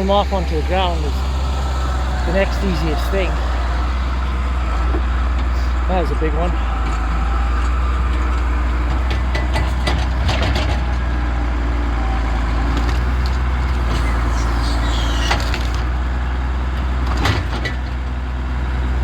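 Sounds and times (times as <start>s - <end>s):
engine running: 0.0s - 19.0s
short falling squeal: 13.8s - 15.9s.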